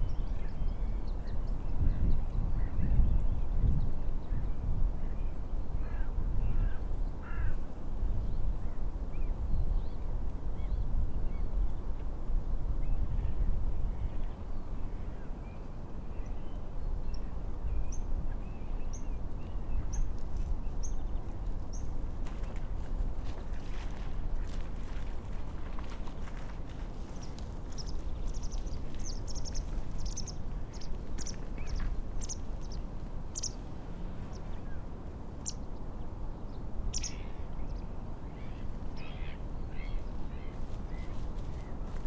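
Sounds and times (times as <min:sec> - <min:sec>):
wind: 0:00.0 - 0:42.0.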